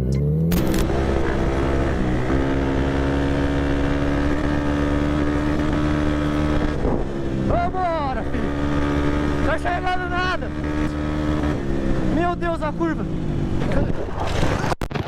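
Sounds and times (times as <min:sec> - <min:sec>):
motorcycle engine at high revs: 0:00.0 - 0:14.8
wind noise: 0:00.6 - 0:09.4, 0:13.2 - 0:15.0.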